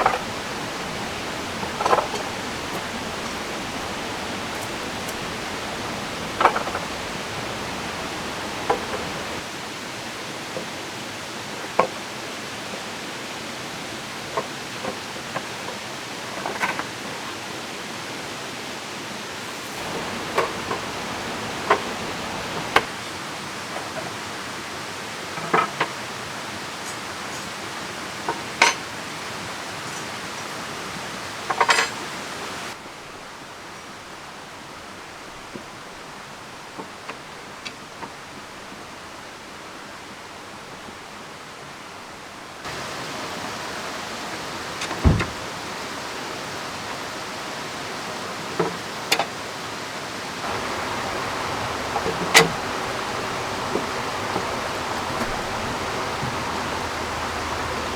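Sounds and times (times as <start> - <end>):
rain falling: 0.0 - 10.1, 19.0 - 23.8, 41.8 - 57.9
river rushing: 0.0 - 57.9.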